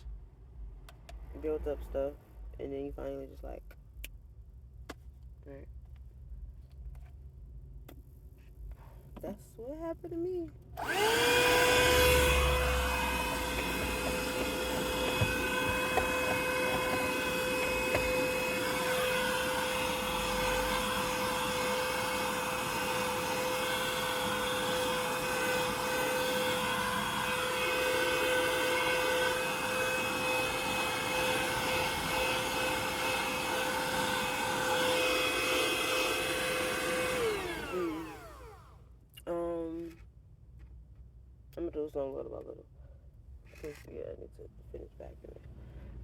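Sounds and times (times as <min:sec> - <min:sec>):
vacuum cleaner running: 0:10.8 - 0:38.7.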